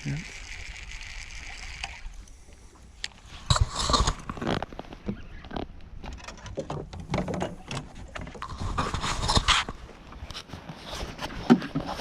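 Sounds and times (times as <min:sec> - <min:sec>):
clicks knocks and scrapes on boat: 0:03.4 - 0:12.0.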